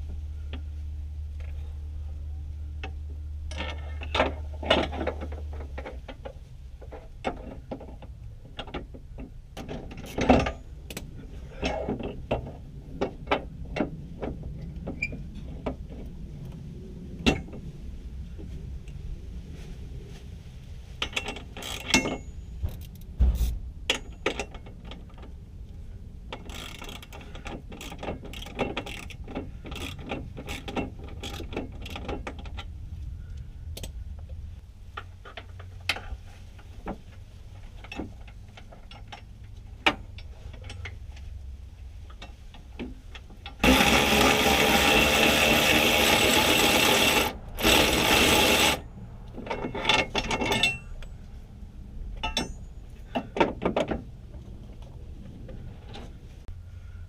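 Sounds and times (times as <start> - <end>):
hand tools clicking and clanking: 21.0 - 25.4, 26.3 - 32.7, 42.1 - 51.2, 52.2 - 54.5
power tool running: 43.6 - 48.8.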